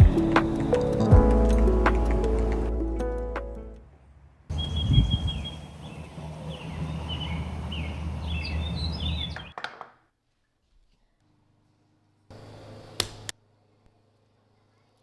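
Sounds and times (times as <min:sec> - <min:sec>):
steady rushing background: 0:00.0 - 0:03.7
small birds chirping: 0:04.6 - 0:09.5.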